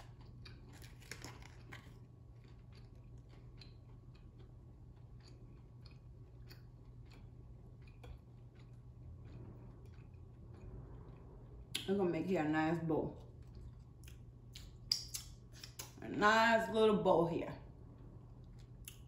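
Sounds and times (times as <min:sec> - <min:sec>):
faint chewing of food: 0:00.0 - 0:11.9, 0:13.1 - 0:16.0, 0:17.8 - 0:19.0
soft mouth clicks: 0:14.0 - 0:16.0.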